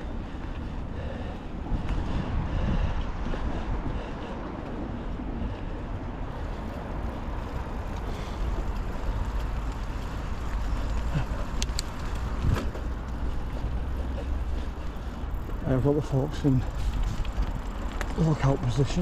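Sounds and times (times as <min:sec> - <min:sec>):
bike rolling on trail: 0:00.0 - 0:19.0
wind rumbling on microphone: 0:00.0 - 0:19.0
sharp clicks: 0:11.5 - 0:12.3.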